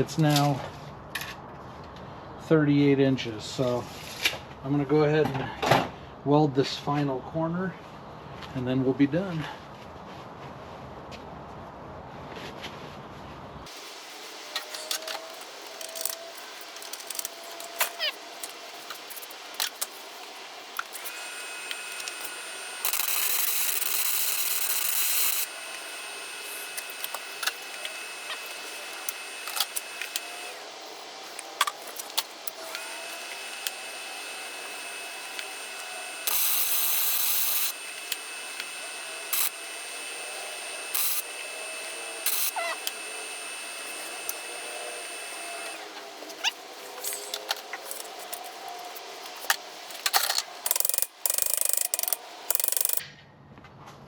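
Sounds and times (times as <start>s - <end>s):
electric welding arc hissing: 13.7s - 53.0s.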